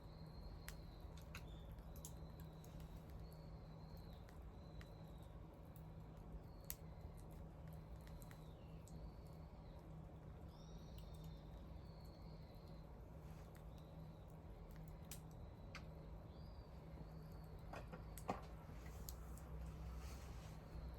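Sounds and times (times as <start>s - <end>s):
bonfire crackling: 0.0s - 20.9s
low steady hum: 0.0s - 20.9s
fire popping: 13.4s - 16.0s.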